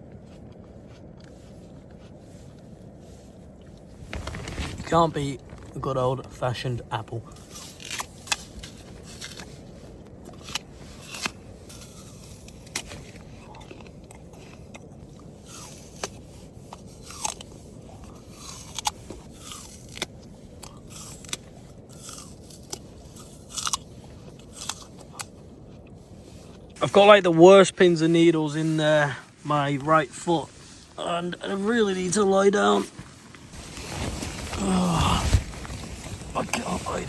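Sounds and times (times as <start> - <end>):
crunching and chewing apple: 0.0 - 6.4, 7.0 - 26.8.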